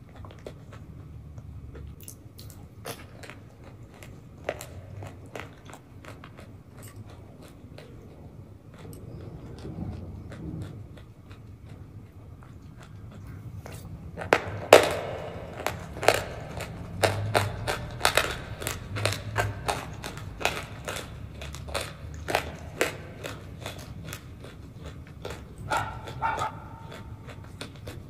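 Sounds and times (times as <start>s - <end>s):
crunches and wet crackles: 0.0s - 14.3s
chewing creamy food: 0.0s - 14.4s, 15.6s - 28.0s.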